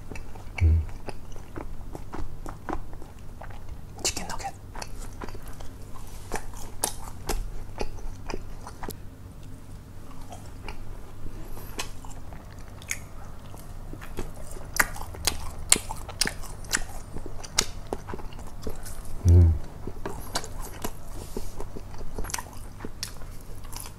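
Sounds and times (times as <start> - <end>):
chewing crispy chicken nuggets: 0.0 - 23.9
mouth clicks: 0.6 - 1.0, 19.2 - 19.7.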